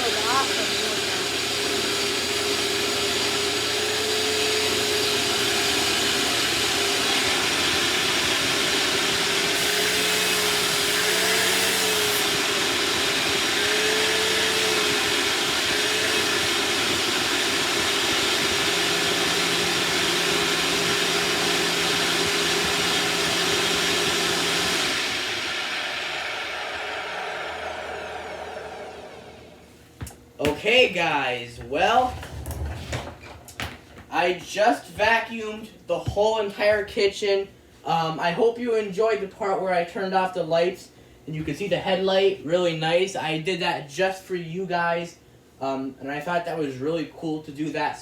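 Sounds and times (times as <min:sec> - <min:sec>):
vacuum cleaner running: 0:00.0 - 0:35.2.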